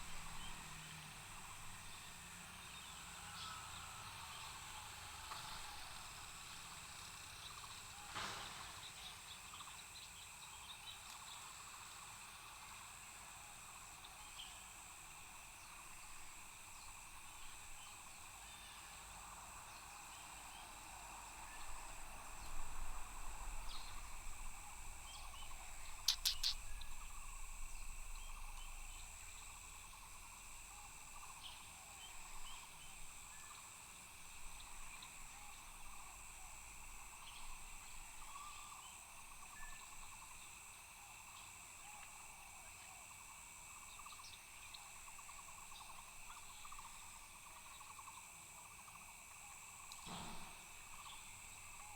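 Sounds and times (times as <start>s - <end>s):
insects trilling: 0.0s - 51.9s
short insect chirps: 21.4s - 40.7s
sharp clicks: 26.0s - 26.6s.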